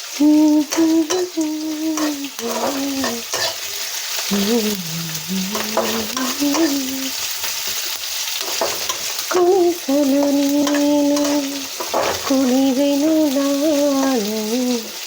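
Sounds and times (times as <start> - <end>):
onions sizzling in oil: 0.0 - 15.0
woman humming: 0.2 - 3.3, 4.2 - 7.2, 9.3 - 11.7, 12.3 - 15.0.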